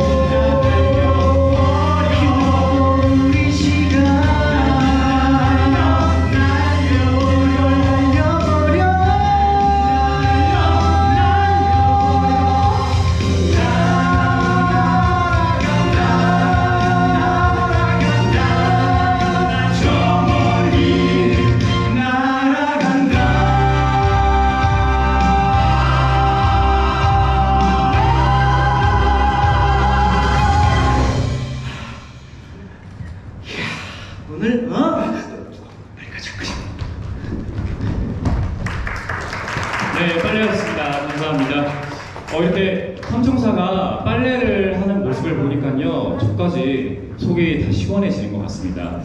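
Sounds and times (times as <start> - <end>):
voices singing in harmony: 0.0 - 32.1.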